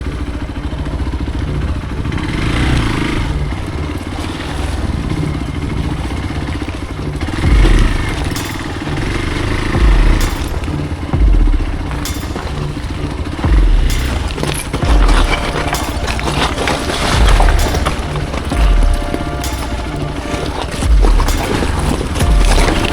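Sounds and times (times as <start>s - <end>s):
motorcycle engine running: 0.0s - 22.9s
heavy low thumps: 7.3s - 22.9s
sharp knocks: 9.7s - 22.9s.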